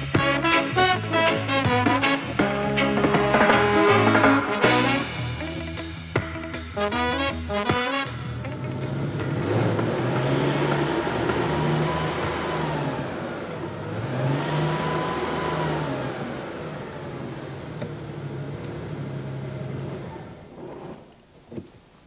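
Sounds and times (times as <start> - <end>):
car engine accelerating: 8.3 - 21.1.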